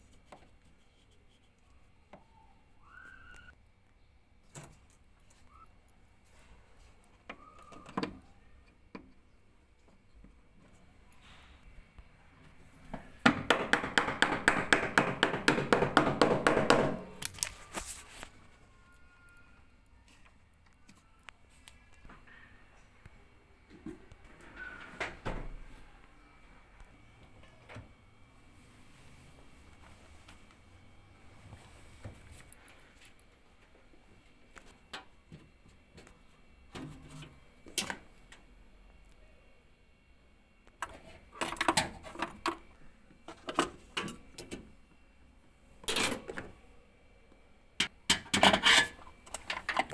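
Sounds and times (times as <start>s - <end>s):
tools clicking and knocking: 13.0s - 17.6s.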